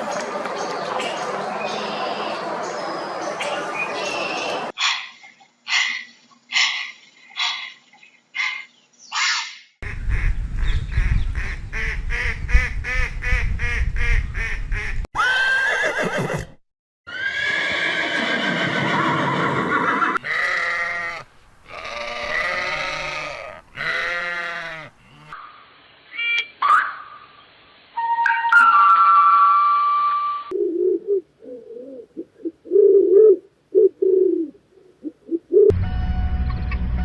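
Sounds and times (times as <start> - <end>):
farm animals calling: 4.0 - 10.4, 17.1 - 27.2.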